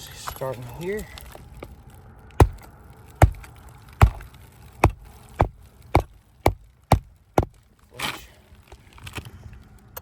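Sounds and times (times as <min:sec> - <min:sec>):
hammer driving nail into shingle: 0:02.4 - 0:02.6, 0:03.2 - 0:07.6.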